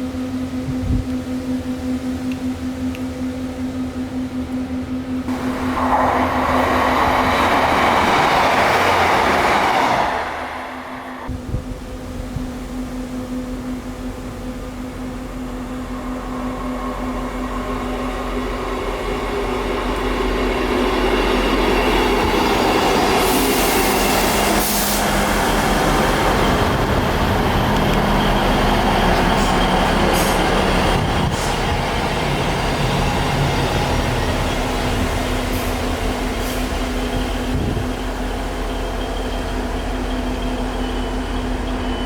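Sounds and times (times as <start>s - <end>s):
diesel train engine hum: 0.0s - 42.0s.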